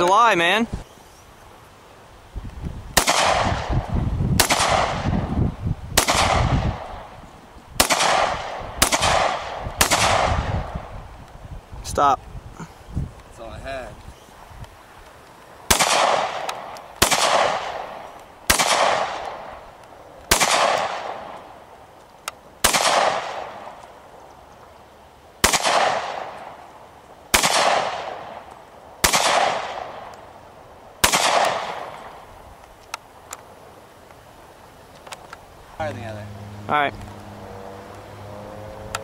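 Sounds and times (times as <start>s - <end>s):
gunshots with echo: 3.0s - 3.7s, 4.4s - 5.3s, 6.0s - 7.1s, 7.8s - 10.6s, 15.7s - 19.5s, 20.3s - 21.4s, 22.6s - 23.7s, 25.4s - 26.4s, 27.3s - 28.4s, 29.0s - 30.0s, 31.0s - 32.0s.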